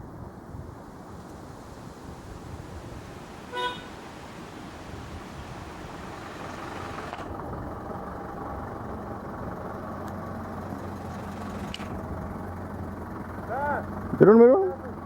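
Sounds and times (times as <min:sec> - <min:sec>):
engine and road noise: 0:00.0 - 0:15.0
vehicle horn toot: 0:03.5 - 0:04.0.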